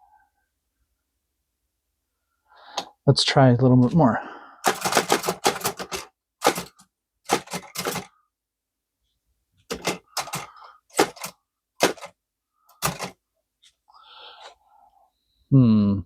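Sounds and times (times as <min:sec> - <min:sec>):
typewriter clacks: 0:04.6 - 0:08.1, 0:09.7 - 0:13.2.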